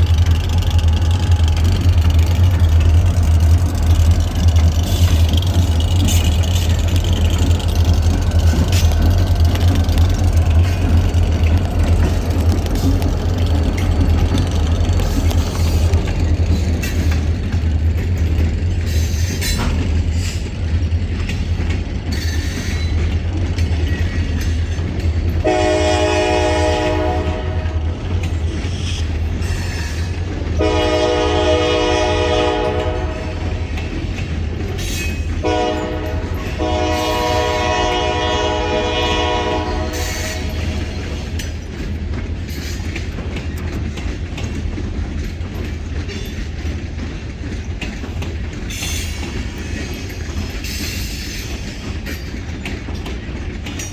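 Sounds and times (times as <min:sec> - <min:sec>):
locomotive engine rumble: 0:00.0 - 0:53.9
train air horn blasts: 0:25.4 - 0:28.0, 0:29.6 - 0:33.7, 0:35.4 - 0:40.9.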